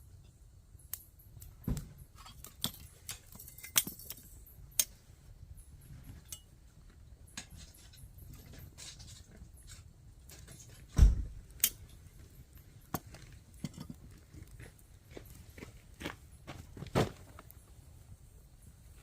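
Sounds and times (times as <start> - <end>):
small hard objects clinking: 2.1 - 4.9, 11.6 - 16.4.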